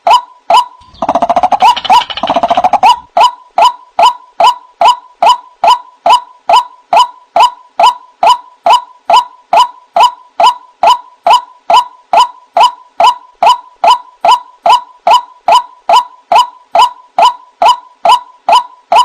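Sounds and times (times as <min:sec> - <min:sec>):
waterhen calling: 0:00.8 - 0:03.1.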